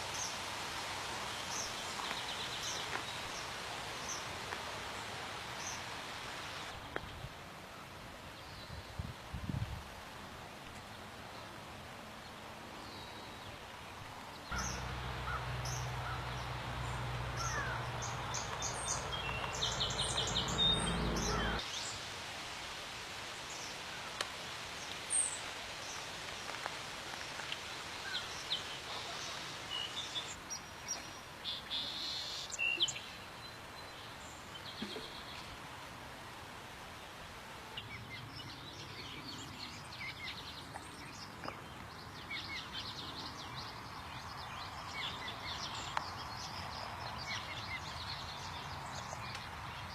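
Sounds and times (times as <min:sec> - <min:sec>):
faint steady hiss: 0:00.0 - 0:49.9
small birds chirping: 0:14.3 - 0:22.0
low steady hum: 0:14.5 - 0:21.6.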